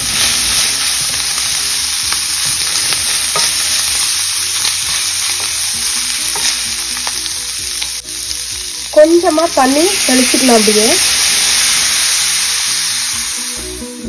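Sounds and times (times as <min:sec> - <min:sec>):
chicken sizzling in oil: 0:00.0 - 0:14.0
spatula scraping and tapping pan: 0:02.4 - 0:07.3.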